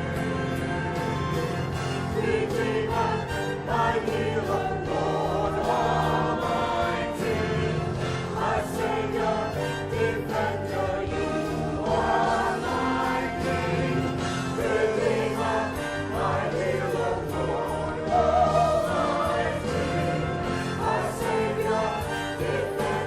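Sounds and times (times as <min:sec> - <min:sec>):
choir singing: 0:00.0 - 0:23.0
instrumental backing music: 0:00.0 - 0:23.0.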